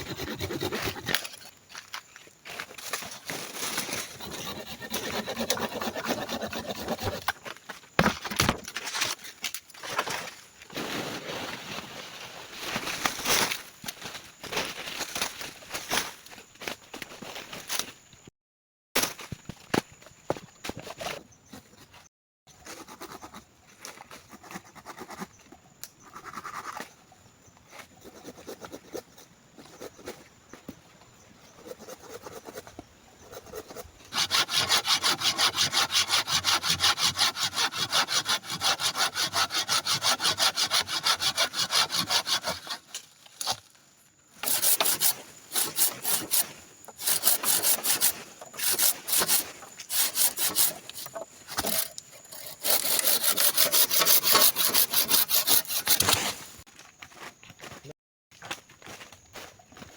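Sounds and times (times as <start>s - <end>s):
hand saw cutting wood: 0.0s - 1.5s, 3.3s - 7.4s, 33.4s - 43.6s, 44.4s - 56.6s.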